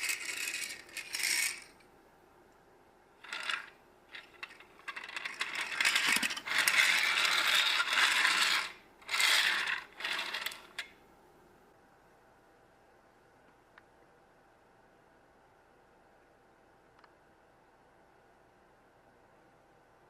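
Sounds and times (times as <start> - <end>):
plastic blocks clattering: 0.0 - 1.7, 3.2 - 10.9.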